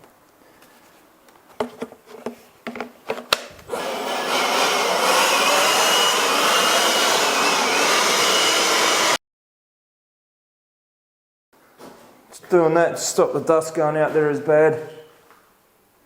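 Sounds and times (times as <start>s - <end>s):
angle grinder grinding concrete: 3.6s - 9.2s.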